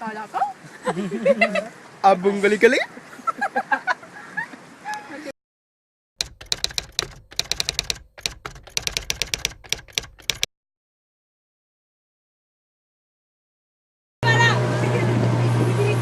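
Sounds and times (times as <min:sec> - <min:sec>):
rapid sharp clicks: 0:06.2 - 0:10.5.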